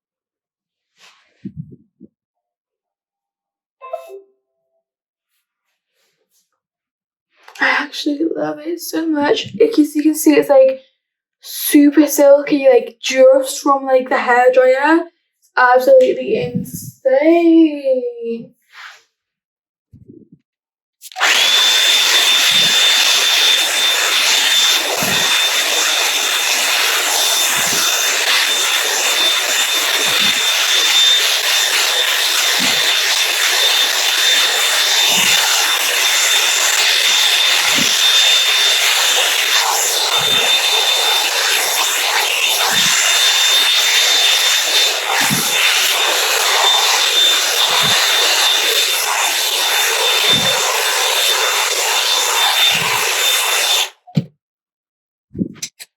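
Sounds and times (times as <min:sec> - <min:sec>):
low bumps: 0:01.4 - 0:02.1
hair dryer blowing with whine: 0:21.1 - 0:54.0.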